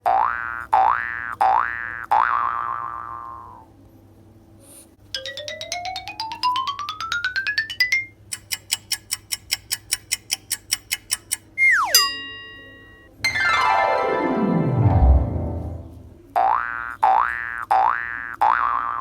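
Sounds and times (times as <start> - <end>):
rising mallet notes: 5.2 - 8.1, 13.2 - 16.3
falling whistle glide: 11.6 - 12.2
short ringing notes: 11.8 - 16.3.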